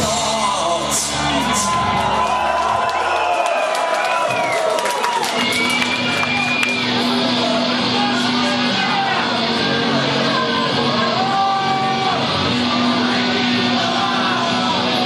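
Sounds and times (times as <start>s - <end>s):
person singing: 0.0s - 2.1s, 9.4s - 15.0s.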